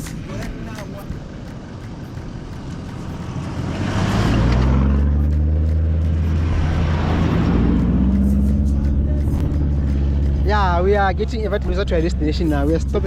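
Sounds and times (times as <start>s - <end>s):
truck engine driving on sand: 0.0s - 13.0s.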